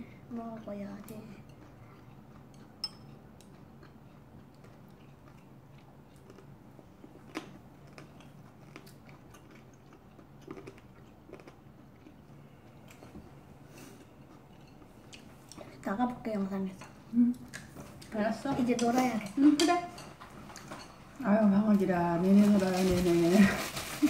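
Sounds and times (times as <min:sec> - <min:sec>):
faint crunchy chewing: 0:00.8 - 0:15.9.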